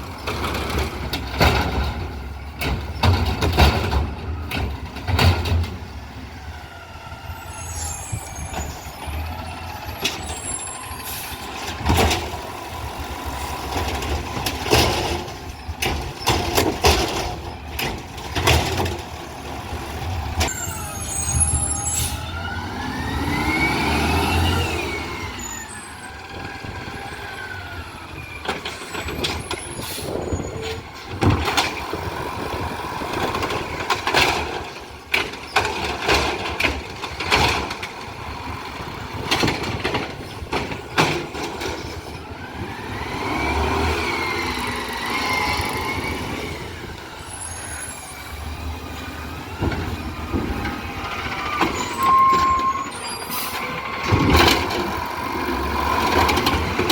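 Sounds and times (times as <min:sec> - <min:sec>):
truck engine revving: 0:21.1 - 0:28.2, 0:41.3 - 0:52.1, 0:52.9 - 0:56.9.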